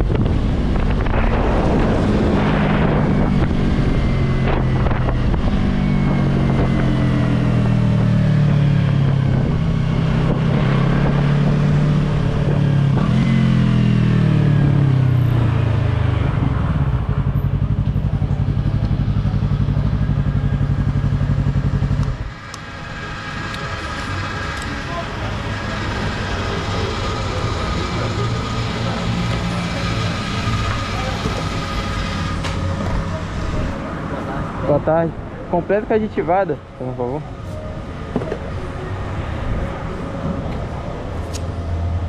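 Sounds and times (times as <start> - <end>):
motorcycle engine slowing down: 12.4 - 33.2.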